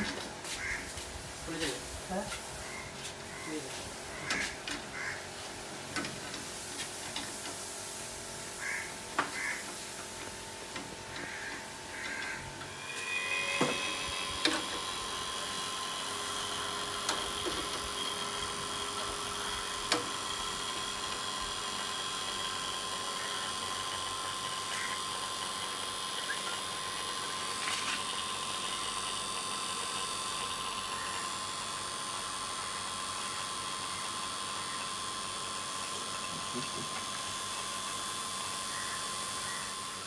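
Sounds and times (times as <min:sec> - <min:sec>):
small motor whining: 0:11.1 - 0:40.0.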